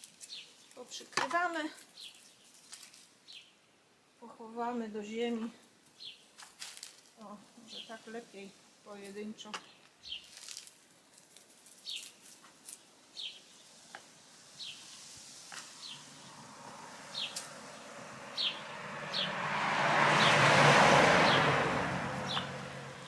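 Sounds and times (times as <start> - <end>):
small bird chirping: 1.8 - 3.6, 11.7 - 13.8, 17.0 - 19.3
motor vehicle passing: 14.6 - 23.0.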